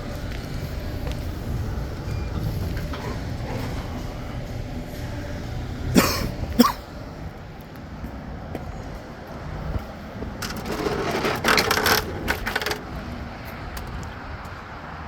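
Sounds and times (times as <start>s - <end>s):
steady low rumble: 0.0s - 15.0s
person coughing: 5.9s - 7.0s.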